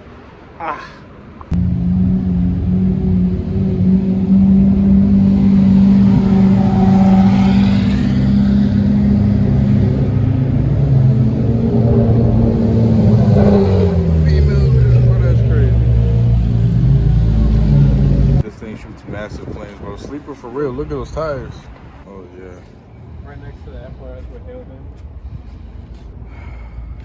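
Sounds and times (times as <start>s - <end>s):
car engine at high revs: 1.5s - 18.4s.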